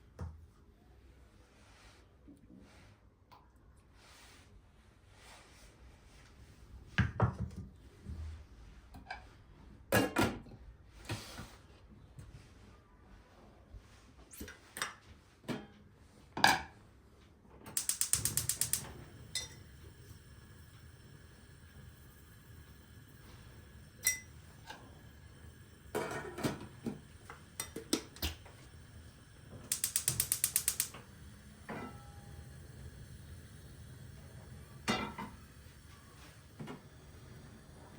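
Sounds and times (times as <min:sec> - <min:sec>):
ratcheting clicks: 0:17.8 - 0:19.0, 0:29.7 - 0:31.0
ringing clink: 0:24.0 - 0:24.3.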